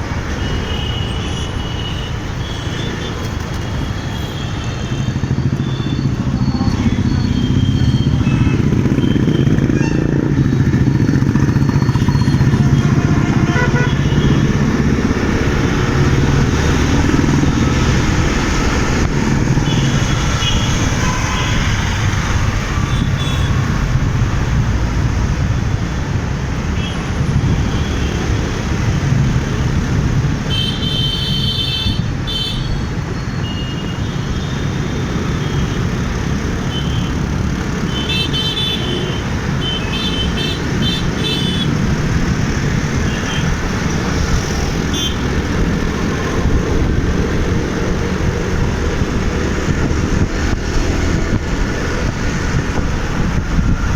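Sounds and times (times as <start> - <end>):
motorcycle engine and road noise: 0.0 - 53.9
vehicle horns honking: 12.6 - 14.6, 30.5 - 35.9, 36.6 - 41.8, 44.8 - 45.4.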